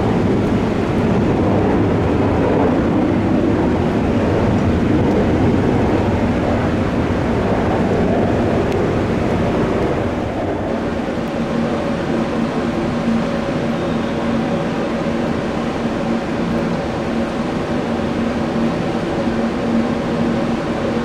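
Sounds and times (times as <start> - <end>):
faint engine whine: 0.0 - 21.0
jet engines rumbling: 0.0 - 21.0.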